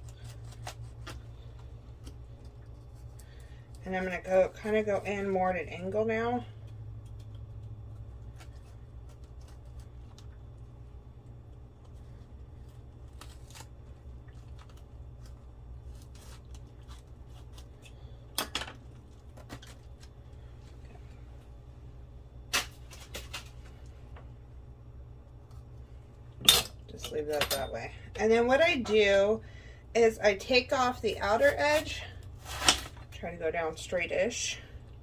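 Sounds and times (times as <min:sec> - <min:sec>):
knife cutting cabbage: 0:00.0 - 0:03.4, 0:12.7 - 0:18.0, 0:31.1 - 0:33.1
steady low hum: 0:00.0 - 0:35.0.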